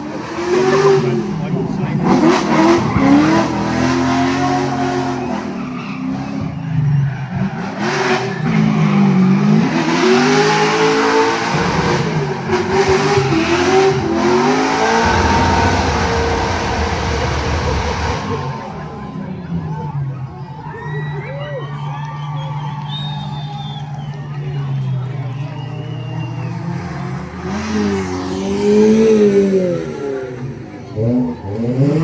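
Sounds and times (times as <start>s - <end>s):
car engine revving hard: 0.0s - 20.2s
tyre noise on road: 0.0s - 32.0s.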